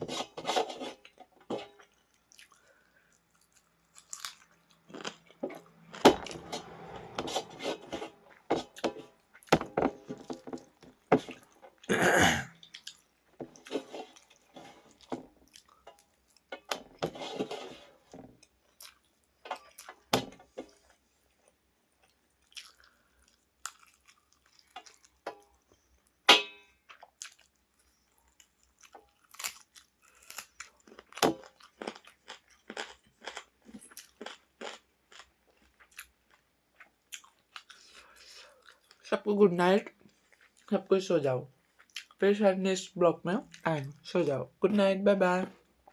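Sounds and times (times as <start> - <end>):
chewing and crunching: 0.8 - 11.9, 12.6 - 16.7, 18.4 - 26.1, 26.8 - 39.1, 40.0 - 40.8, 41.6 - 42.2.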